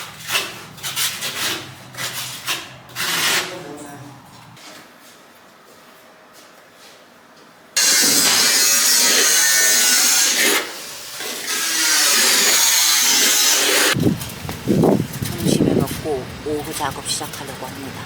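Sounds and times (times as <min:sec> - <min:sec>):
construction power tool: 0:07.8 - 0:14.0.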